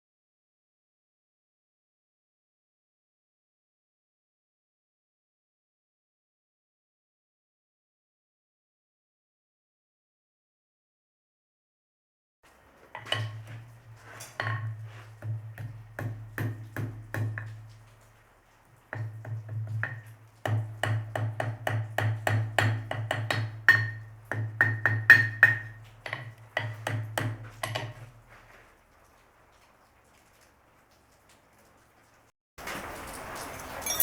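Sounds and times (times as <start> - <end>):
hammer striking steel on anvil: 19.8 - 28.0, 33.8 - 34.0.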